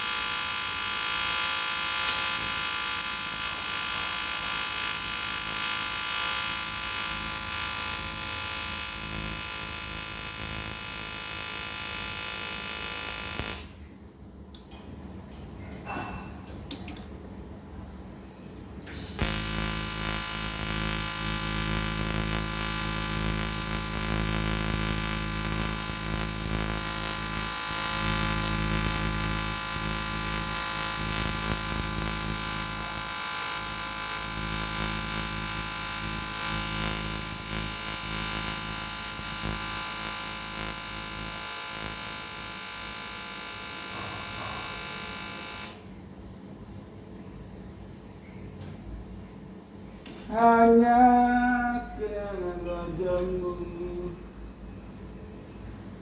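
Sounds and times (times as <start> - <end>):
welding arc buzzing: 0.0 - 13.9, 18.8 - 46.0.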